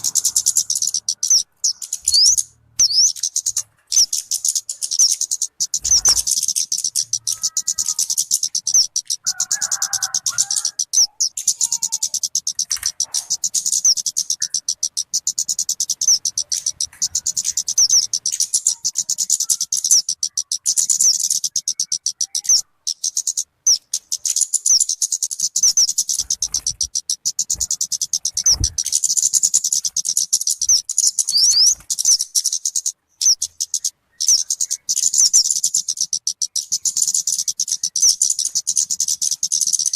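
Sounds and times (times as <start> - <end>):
high-pitched bird chirps: 0.0 - 39.9.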